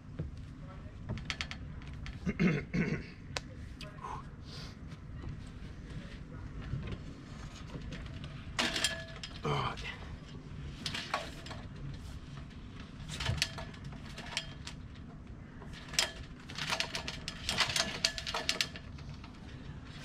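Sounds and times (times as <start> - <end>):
metallic clinks of mast rigging: 15.7 - 18.9.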